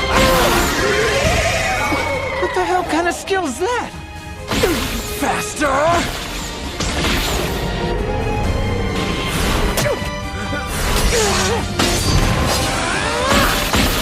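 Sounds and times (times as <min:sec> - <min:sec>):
shouted battle cries: 0:00.0 - 0:03.5
dramatic background music: 0:00.0 - 0:14.0.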